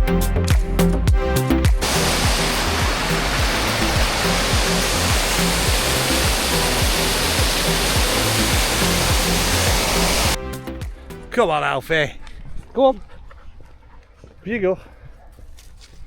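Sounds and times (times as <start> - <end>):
music with low beat: 0.0 - 11.2
waterfall rushing: 1.8 - 10.4.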